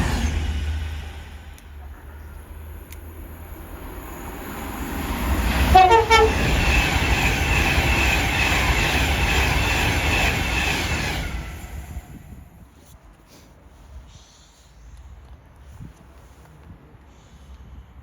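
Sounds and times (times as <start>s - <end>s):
train wheels rushing on rail: 0.0s - 12.6s
train horn: 5.7s - 6.4s.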